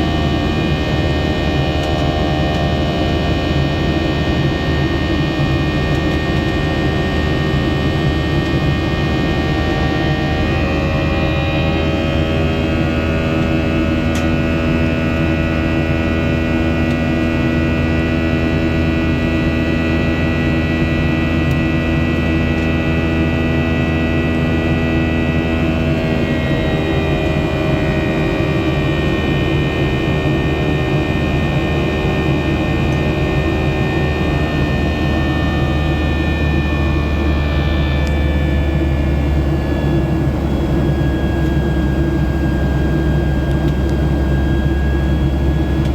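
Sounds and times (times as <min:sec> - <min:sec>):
jet engine roar in cabin: 0:00.0 - 0:45.9
whining engine tones: 0:00.0 - 0:45.9.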